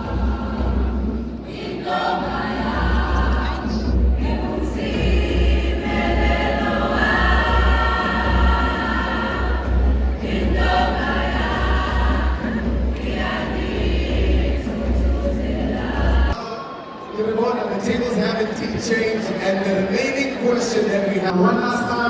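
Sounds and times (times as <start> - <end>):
choir singing: 0.0 - 16.6.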